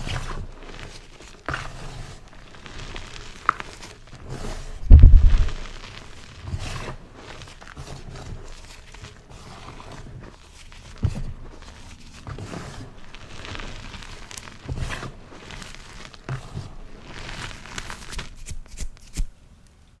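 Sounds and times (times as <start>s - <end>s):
chalk blocks crunching: 0.6s - 19.3s
dull thuds: 4.8s - 5.8s.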